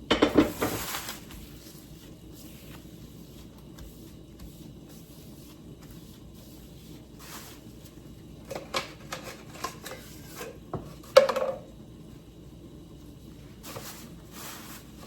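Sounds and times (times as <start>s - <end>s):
kitchenware knocks and clinks: 0.1s - 0.8s, 10.8s - 11.7s.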